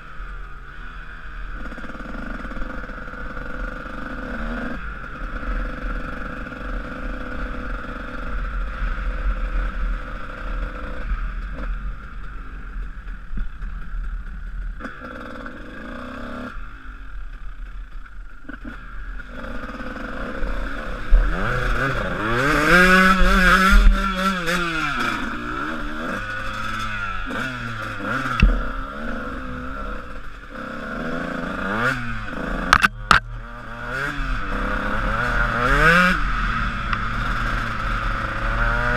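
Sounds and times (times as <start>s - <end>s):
motocross engine revving: 18.5s - 38.9s.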